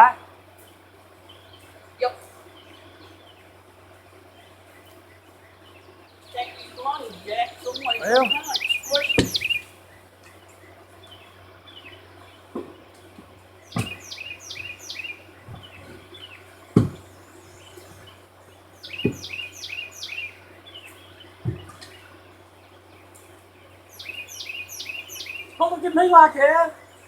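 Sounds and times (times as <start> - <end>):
songbird chirping: 0.0 - 27.0
sharp knocks: 9.1 - 9.5, 13.7 - 14.0, 16.7 - 17.1, 19.0 - 19.4, 21.4 - 21.9.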